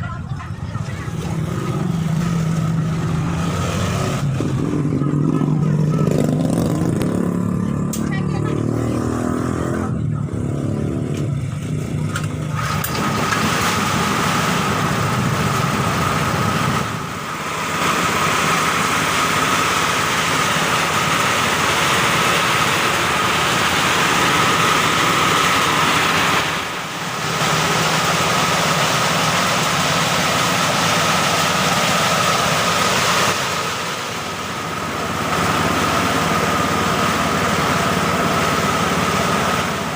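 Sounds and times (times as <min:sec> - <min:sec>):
small engine machine running: 0:10.3 - 0:39.9.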